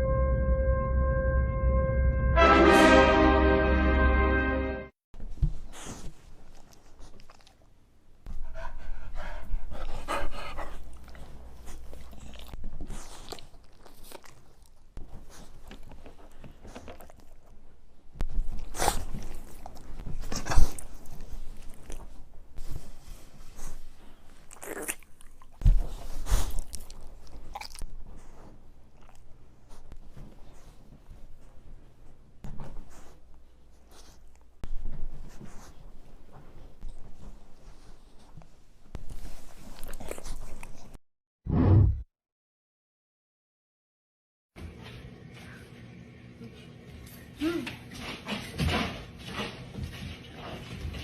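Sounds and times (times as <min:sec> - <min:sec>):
crunching and chewing: 0:06.5 - 0:07.7, 0:10.6 - 0:17.8, 0:18.4 - 0:22.3, 0:23.6 - 0:29.8, 0:39.6 - 0:41.0.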